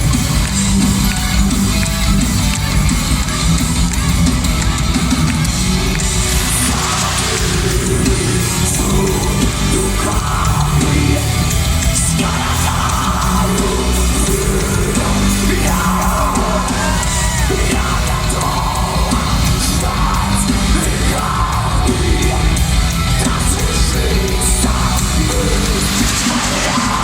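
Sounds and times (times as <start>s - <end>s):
heavy rock band playing: 0.0s - 27.0s
person singing: 5.9s - 27.0s.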